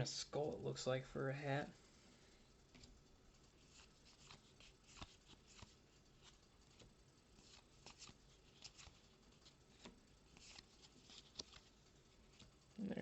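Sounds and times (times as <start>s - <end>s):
trading cards being flipped: 3.6s - 12.5s.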